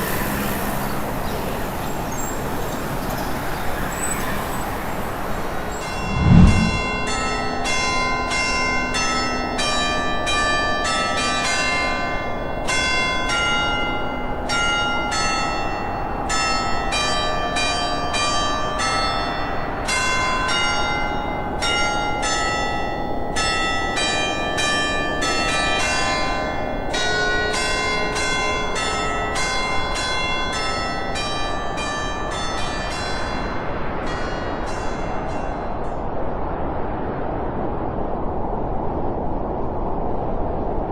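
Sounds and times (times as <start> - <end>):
steady background rush: 3.7 - 7.2
low thump: 5.9 - 7.0
church bells pealing: 6.7 - 35.9.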